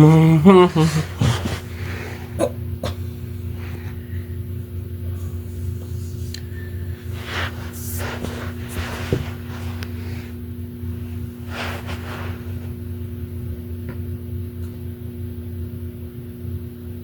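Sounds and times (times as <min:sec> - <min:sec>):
low electrical hum: 0:00.0 - 0:17.0
noisy rustles: 0:05.3 - 0:13.1.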